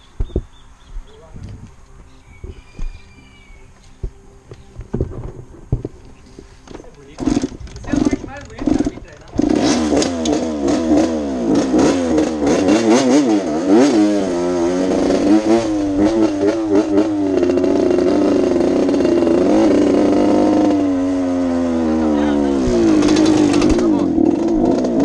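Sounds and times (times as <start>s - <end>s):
motocross engine revving: 6.6s - 25.0s.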